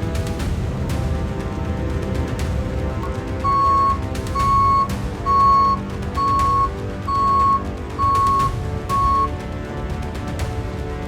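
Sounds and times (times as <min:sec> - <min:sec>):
background music: 0:00.0 - 0:11.0
high steady beeps: 0:03.0 - 0:09.3.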